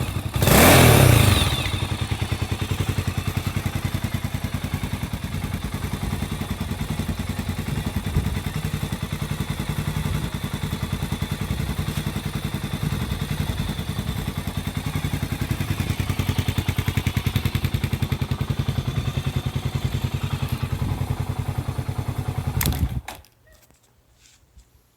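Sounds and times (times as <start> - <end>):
motorcycle engine idling: 0.0 - 23.0
sharp click: 22.6 - 23.4.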